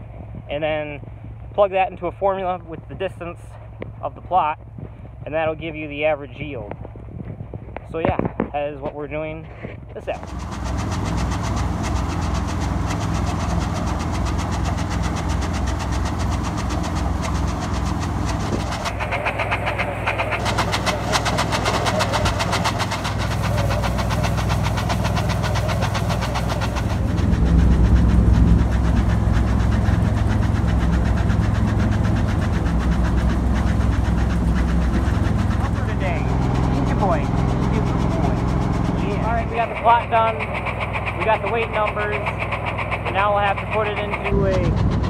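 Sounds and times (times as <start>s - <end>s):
harvester engine running: 0.0s - 45.0s
fast mechanical rattle: 10.0s - 45.0s.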